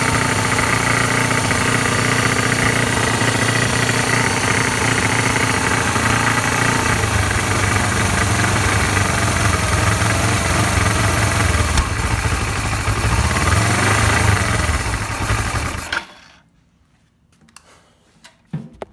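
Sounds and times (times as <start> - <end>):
motorcycle engine idling: 0.0 - 16.2.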